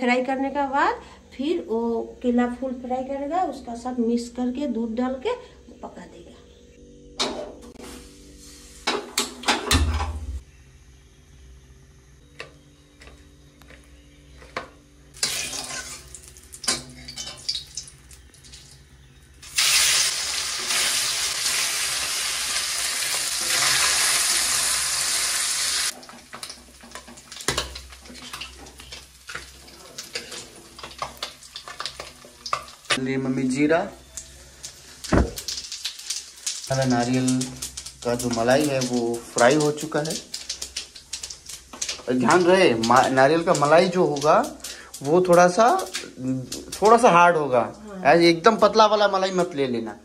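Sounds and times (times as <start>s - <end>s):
food sizzling in hot oil: 7.7s - 9.2s, 15.1s - 49.4s
utensils clinking: 14.4s - 18.0s.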